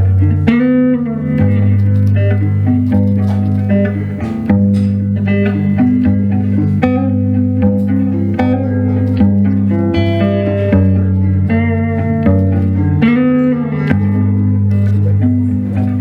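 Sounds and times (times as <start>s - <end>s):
plucked guitar notes: 0.0s - 16.0s
sustained bass line: 0.0s - 16.0s.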